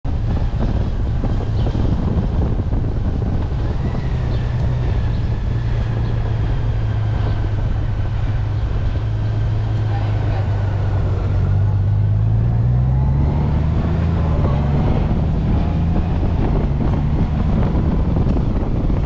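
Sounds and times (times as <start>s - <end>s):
wind buffeting on microphone: 0.0s - 19.0s
motorcycle engine running: 0.1s - 19.0s.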